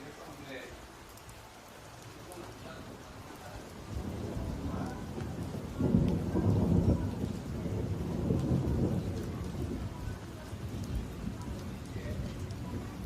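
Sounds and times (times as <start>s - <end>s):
steady rain: 0.0s - 13.0s
thunder rumbling: 2.6s - 13.0s.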